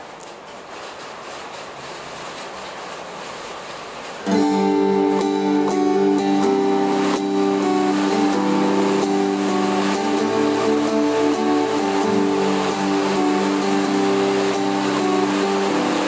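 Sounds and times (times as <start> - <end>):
rain hiss: 0.0 - 16.0
acoustic guitar strumming chords: 4.2 - 16.0.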